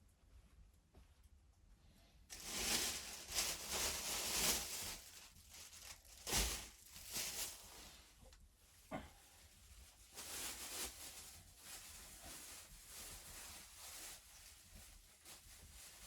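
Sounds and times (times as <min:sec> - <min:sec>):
rustling crinkling handling noise: 0:02.3 - 0:16.0.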